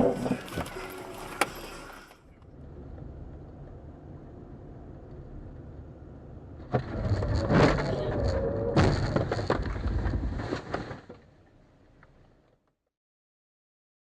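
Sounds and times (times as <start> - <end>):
road rumble: 0.0 - 12.6
car crash impact: 8.6 - 11.3.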